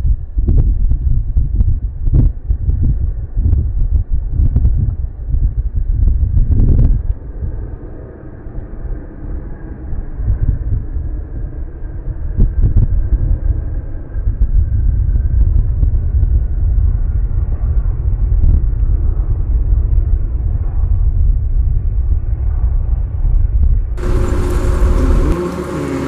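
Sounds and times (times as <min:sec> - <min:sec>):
turboprop engines rumbling: 0:24.0 - 0:26.0.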